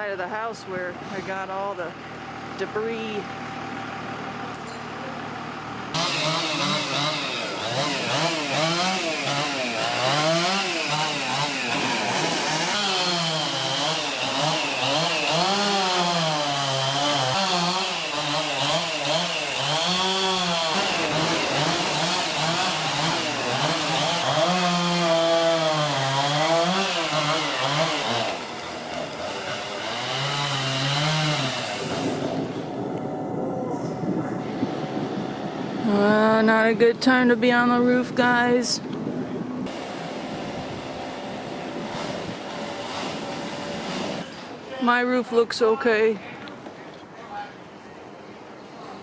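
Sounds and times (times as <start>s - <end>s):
chainsaw revving: 5.2s - 32.9s, 39.6s - 44.6s.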